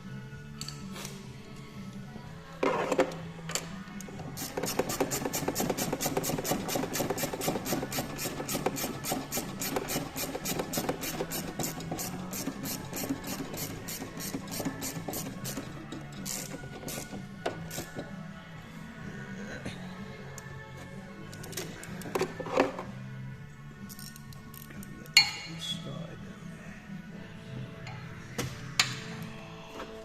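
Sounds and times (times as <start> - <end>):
ratchet wrench clicking: 4.4 - 17.1, 23.9 - 24.7.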